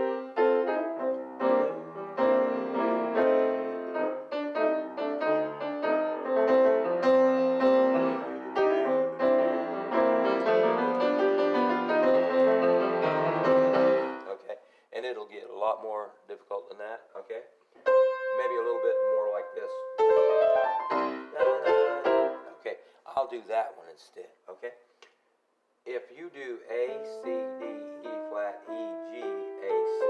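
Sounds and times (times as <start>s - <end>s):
blues piano playing: 0.0s - 14.3s, 17.8s - 22.6s, 26.7s - 30.0s.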